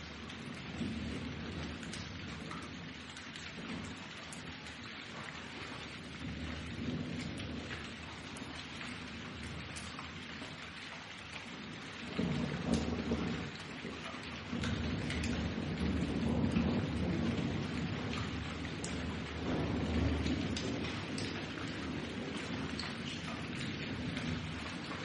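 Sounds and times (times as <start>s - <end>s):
steady rain: 0.0s - 25.0s
thunder rumbling: 0.4s - 2.7s, 12.0s - 25.0s.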